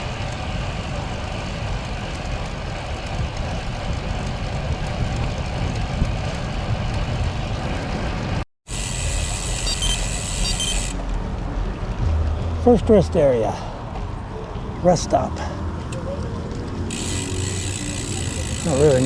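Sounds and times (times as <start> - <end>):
wind buffeting microphone: 0.0 - 8.4
bicycle tyre road noise: 0.0 - 19.0
short high beeps: 9.6 - 11.0.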